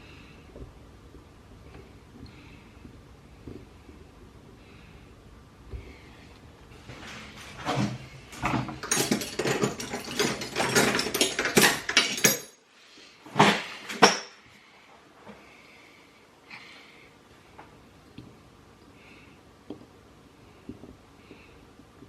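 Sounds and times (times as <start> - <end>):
small metal parts clinking and scraping: 8.4 - 12.6.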